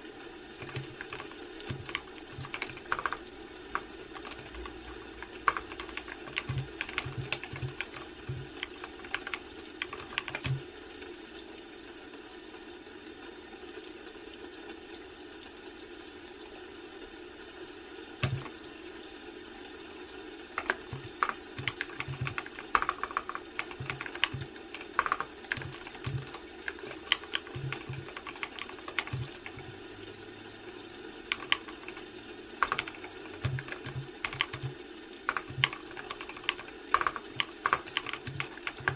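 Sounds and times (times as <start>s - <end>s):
low background hum: 0.0s - 38.9s
loud keyboard click: 0.6s - 3.2s, 3.8s - 10.6s, 18.2s - 18.6s, 20.6s - 29.7s, 31.3s - 38.9s
keyboard typing: 0.6s - 10.7s, 18.2s - 18.7s, 19.8s - 29.8s, 31.2s - 38.9s.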